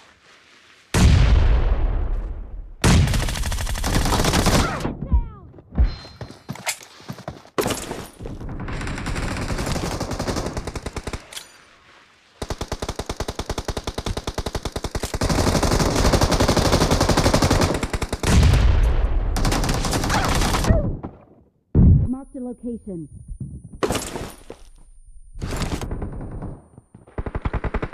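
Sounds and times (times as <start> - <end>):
video game automatic gunfire: 8.5 - 11.2, 25.4 - 27.9.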